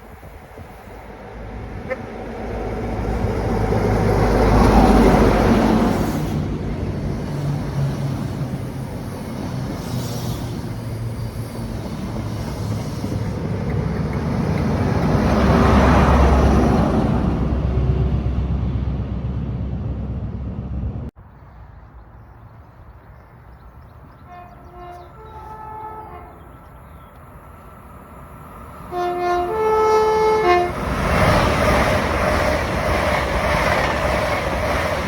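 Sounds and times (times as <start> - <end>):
diesel train passing: 0.0 - 35.0.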